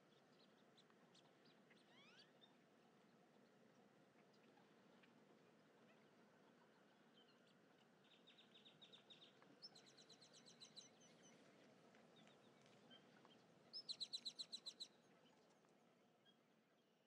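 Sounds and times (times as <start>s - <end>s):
faint outdoor hiss: 0.0s - 17.0s
bird song trills: 0.4s - 2.6s, 7.2s - 11.4s, 13.7s - 15.0s.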